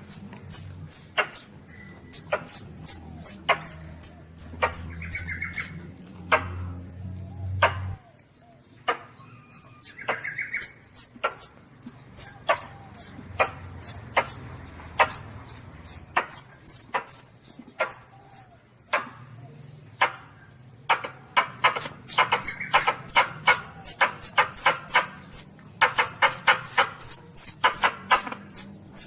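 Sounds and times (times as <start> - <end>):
civet kitten squeaking: 0.0 - 5.8, 9.2 - 18.7, 20.9 - 29.0
sharp clicks: 8.8 - 19.2, 20.9 - 29.0.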